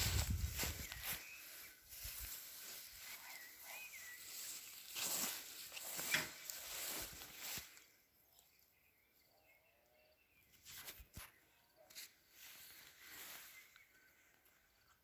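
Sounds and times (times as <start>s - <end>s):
rustling and crunching in grass: 0.0s - 8.0s, 10.6s - 14.2s
faint bird chirps: 0.1s - 15.0s.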